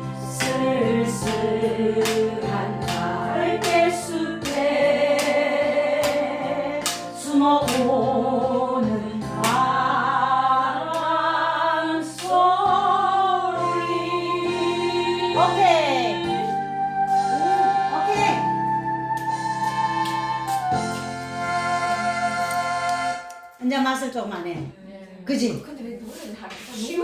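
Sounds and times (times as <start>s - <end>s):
women singing together: 0.0s - 18.5s
instrumental backing track with beat: 15.4s - 23.6s.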